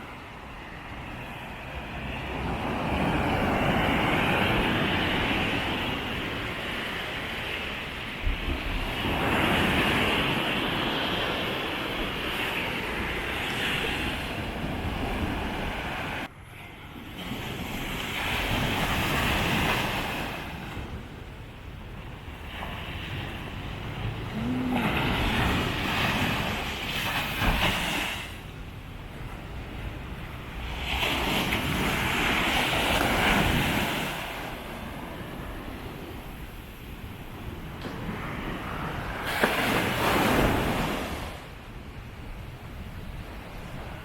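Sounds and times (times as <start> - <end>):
sea surf washing on beach: 0.0 - 44.0
wind rumbling on microphone: 0.0 - 44.0
wave breaking on beach: 22.4 - 28.4, 37.8 - 41.4.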